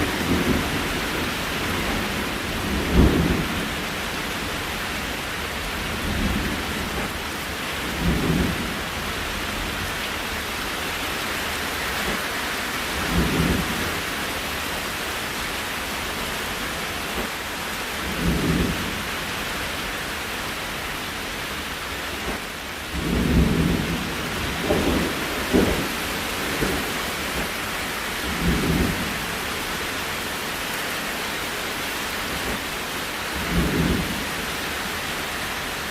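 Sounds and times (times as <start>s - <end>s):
low thunder rumbles: 0.0s - 9.8s, 13.0s - 14.1s, 18.0s - 19.4s, 22.1s - 29.7s, 32.3s - 34.6s
steady rain falling: 0.0s - 35.9s.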